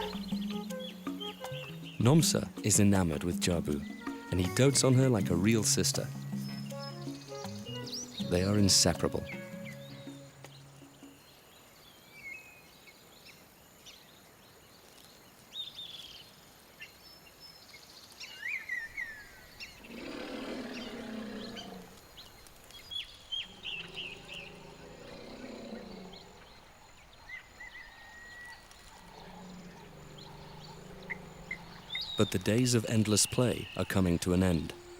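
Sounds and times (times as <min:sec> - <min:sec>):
birds chirping and whistling: 0:00.0 - 0:10.6, 0:18.3 - 0:26.7, 0:27.3 - 0:34.9
large animal low drawn-out call: 0:19.8 - 0:22.0, 0:23.4 - 0:26.6, 0:28.9 - 0:32.4.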